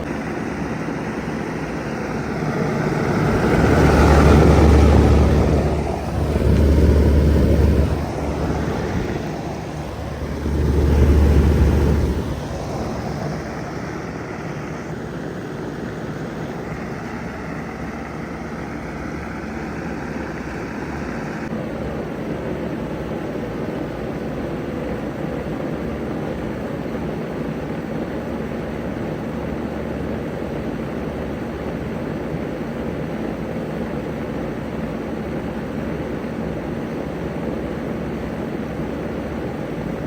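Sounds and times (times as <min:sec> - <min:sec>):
heat pump humming: 0:00.0 - 0:21.7.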